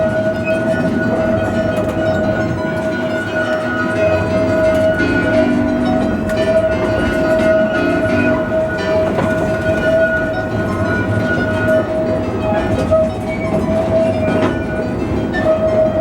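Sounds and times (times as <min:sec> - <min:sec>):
steady high tone: 0:00.0 - 0:12.8
small train rumbling on track: 0:00.0 - 0:16.0
train wheels clicking: 0:00.0 - 0:16.0.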